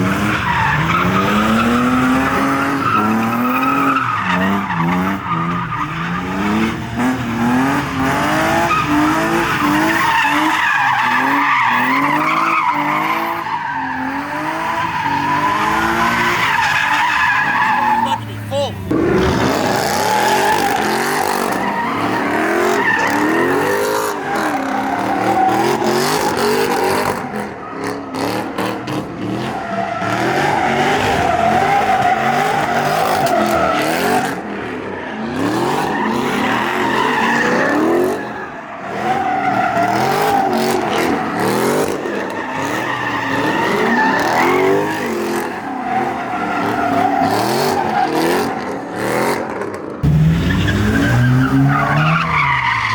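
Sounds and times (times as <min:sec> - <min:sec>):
car engine revving: 0:00.0 - 0:52.9
tires squealing: 0:00.0 - 0:52.9.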